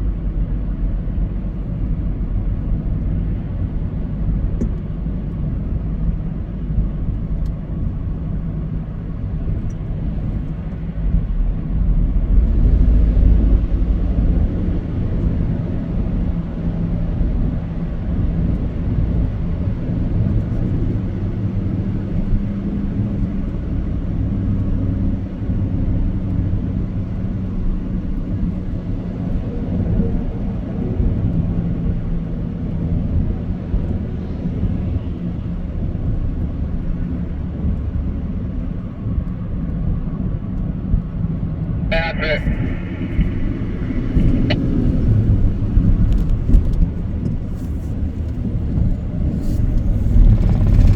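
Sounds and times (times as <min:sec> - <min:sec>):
vehicle engine rumbling: 0:36.0 - 0:50.9.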